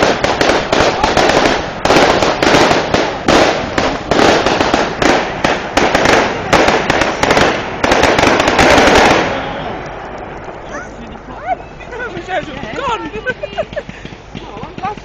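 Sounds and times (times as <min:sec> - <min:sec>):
firework shells bursting: 0:00.0 - 0:10.8, 0:12.0 - 0:15.0
crackling: 0:00.0 - 0:15.0.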